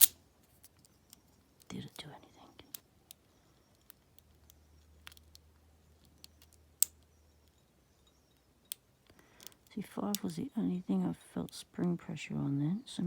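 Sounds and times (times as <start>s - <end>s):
lock pick clicking in padlock: 0.0s - 1.2s.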